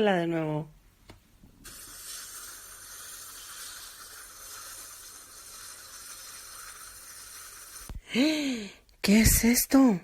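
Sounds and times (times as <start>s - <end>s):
shower water spraying: 1.6s - 8.0s.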